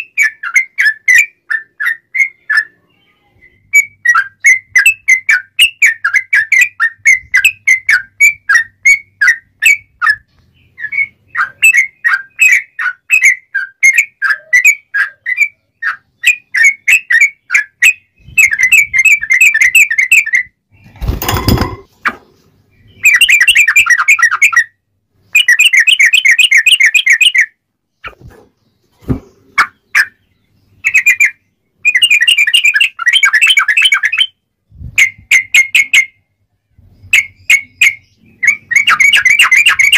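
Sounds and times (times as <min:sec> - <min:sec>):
bulbul singing: 0:37.0 - 0:39.9.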